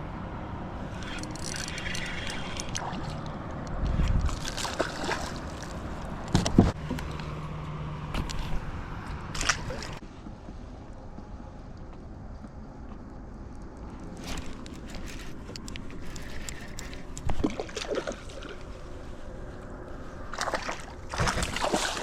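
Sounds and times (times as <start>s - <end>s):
water sloshing and gurgling: 0.9s - 7.3s, 8.1s - 10.0s, 13.9s - 22.0s.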